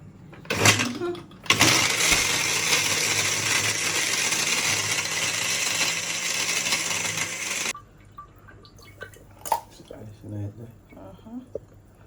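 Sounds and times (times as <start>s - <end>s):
blender crushing ice: 1.5s - 7.7s.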